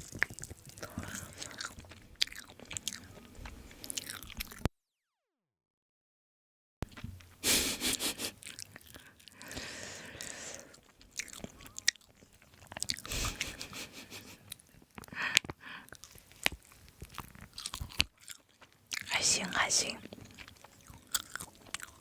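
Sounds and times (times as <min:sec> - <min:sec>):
crisp bites of food: 0:00.0 - 0:04.7, 0:14.4 - 0:19.1, 0:19.9 - 0:22.0
wet chewing: 0:00.0 - 0:04.7, 0:06.8 - 0:22.0.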